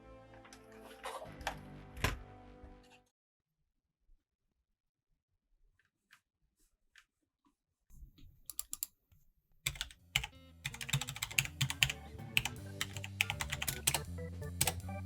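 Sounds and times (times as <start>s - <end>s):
organ-like background music: 0.0s - 3.0s, 10.2s - 15.0s
keyboard typing clicks: 8.5s - 8.9s, 9.7s - 15.0s.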